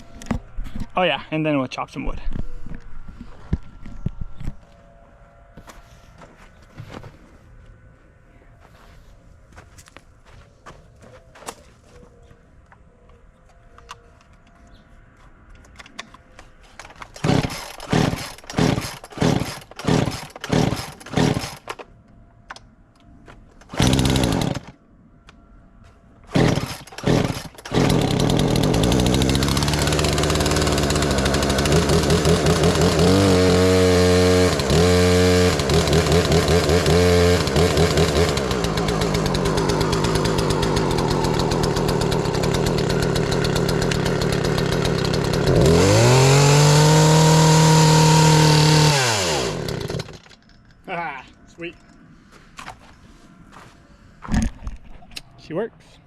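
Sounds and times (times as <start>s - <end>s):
chainsaw starter cord pulls: 16.8s - 21.9s, 23.6s - 24.7s, 26.3s - 50.5s
chainsaw engine running and revving: 17.2s - 21.6s, 23.8s - 24.7s, 26.3s - 50.2s.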